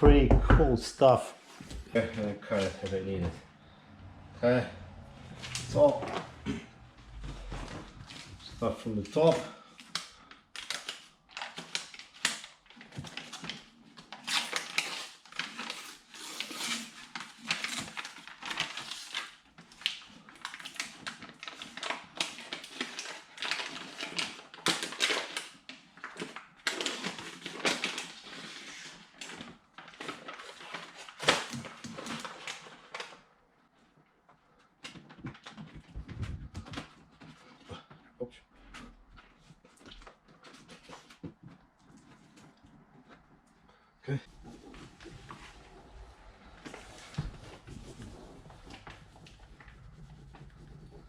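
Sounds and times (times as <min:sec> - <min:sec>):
sound-deadening mat crinkling: 0:44.3 - 0:51.0.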